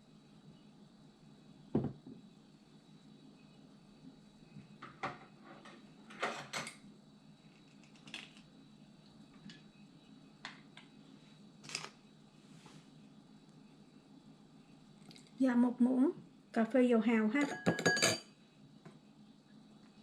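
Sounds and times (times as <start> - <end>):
spoon clinking against bowl: 17.4 - 18.3.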